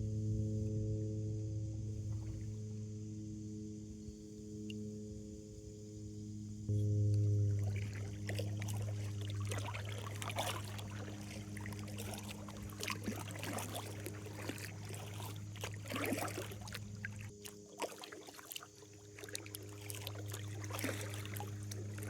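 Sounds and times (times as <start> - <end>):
steady low hum: 0.0 - 22.0
paddle strokes in water: 6.5 - 22.0
water splashes and drips: 6.8 - 22.0.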